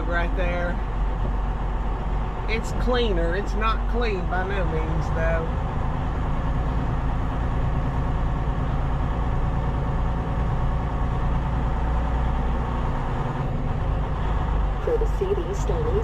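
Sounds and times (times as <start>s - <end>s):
truck diesel engine droning: 0.0s - 16.0s.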